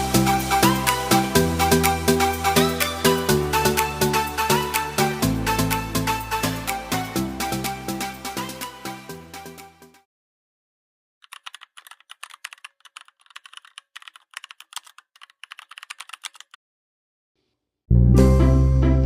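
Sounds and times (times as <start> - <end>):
music: 0.0 - 10.1, 17.9 - 19.0
computer keyboard typing: 11.2 - 16.6.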